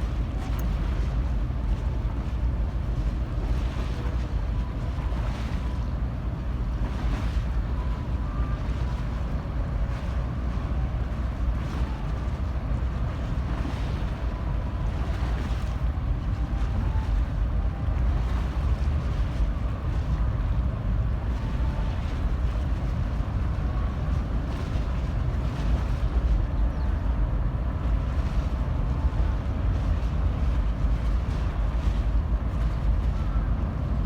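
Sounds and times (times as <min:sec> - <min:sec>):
ship and water low rumble: 0:00.0 - 0:34.0
wind buffeting microphone: 0:00.0 - 0:34.0.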